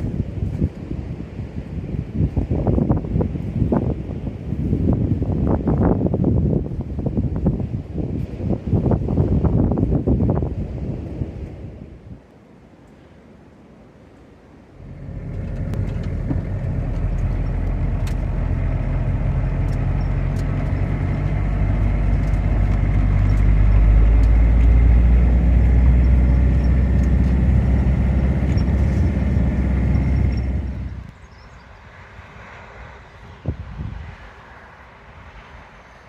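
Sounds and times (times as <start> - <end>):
heavy vehicle engine drone: 14.7 - 33.3.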